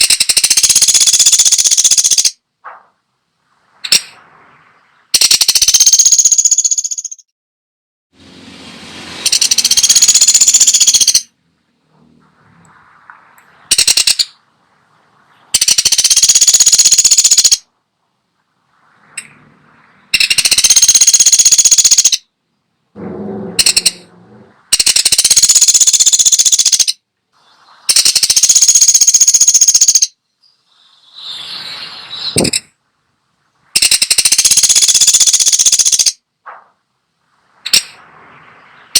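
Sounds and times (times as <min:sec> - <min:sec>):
bird rattling trills: 0:00.0 - 0:07.2, 0:09.2 - 0:11.3, 0:12.8 - 0:14.6, 0:15.2 - 0:17.7, 0:20.0 - 0:22.3, 0:23.2 - 0:27.0, 0:27.7 - 0:32.7, 0:33.7 - 0:36.2, 0:37.6 - 0:38.9.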